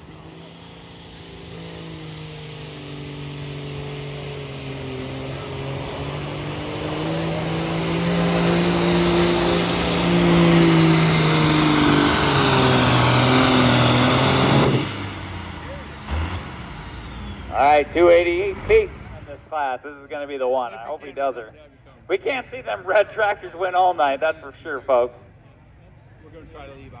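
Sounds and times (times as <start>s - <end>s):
tractor engine running under load: 0.0s - 19.5s.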